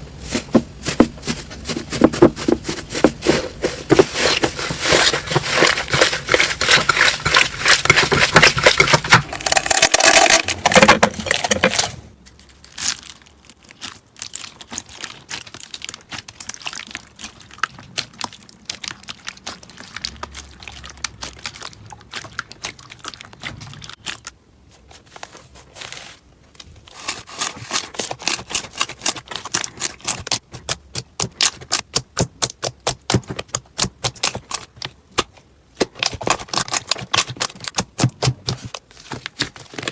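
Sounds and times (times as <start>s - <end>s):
slime crackling and popping: 3.2s - 24.4s.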